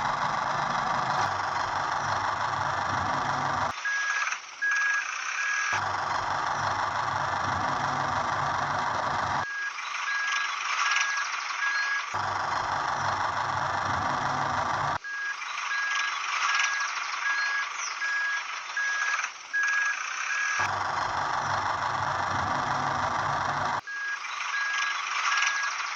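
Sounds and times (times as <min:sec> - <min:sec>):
reversing alarm beeping: 0:00.0 - 0:25.8
vehicle engine running: 0:00.0 - 0:25.9.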